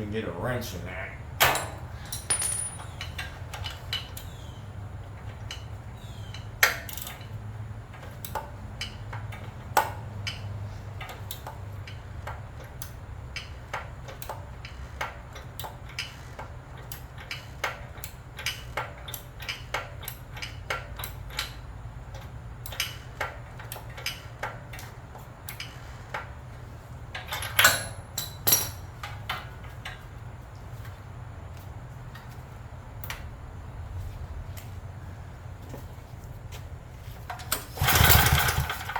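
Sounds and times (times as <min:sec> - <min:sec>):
metallic knocks: 0:01.4 - 0:03.2
hand tools clinking on metal: 0:01.4 - 0:04.2, 0:27.2 - 0:30.0
steady low hum: 0:07.2 - 0:37.7.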